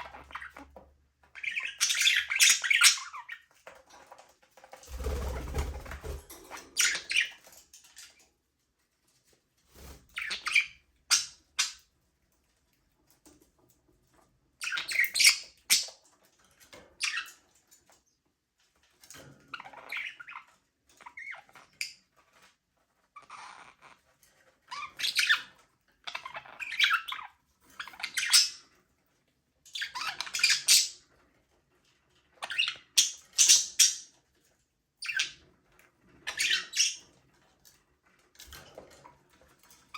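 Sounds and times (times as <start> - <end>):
budgerigars chirping and chattering: 0.0 - 4.2, 5.0 - 7.6, 9.8 - 11.9, 14.6 - 16.0, 17.0 - 17.4, 19.6 - 22.0, 24.7 - 28.8, 29.7 - 31.1, 32.3 - 34.1, 35.0 - 35.4, 36.1 - 37.1.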